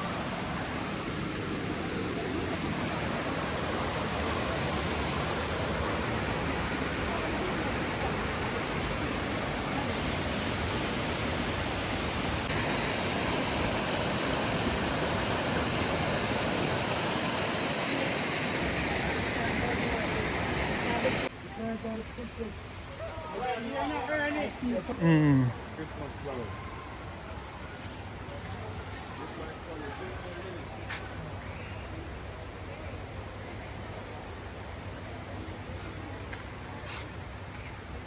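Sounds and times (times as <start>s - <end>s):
waterfall rushing: 0.0s - 21.3s.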